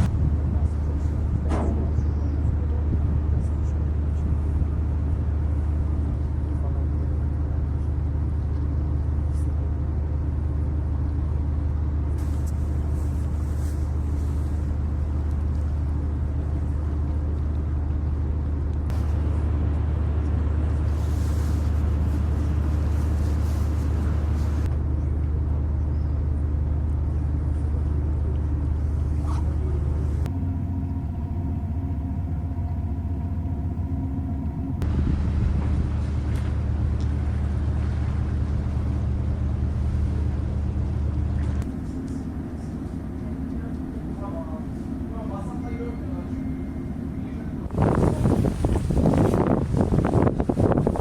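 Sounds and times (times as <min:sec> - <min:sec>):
engine rumble with hum: 0:00.0 - 0:51.0.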